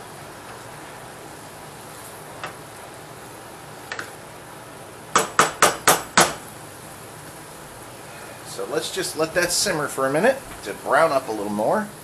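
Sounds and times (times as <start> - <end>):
meat and onions sizzling: 0.0 - 12.0
utensil knocking on frying pan: 5.2 - 6.4.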